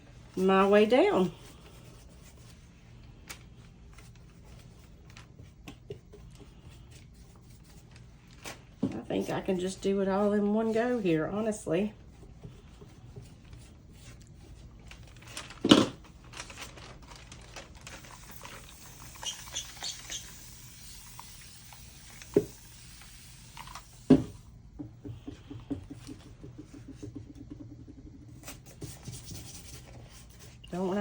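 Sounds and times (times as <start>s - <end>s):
paper rubbing and rustling: 0.2s - 22.3s.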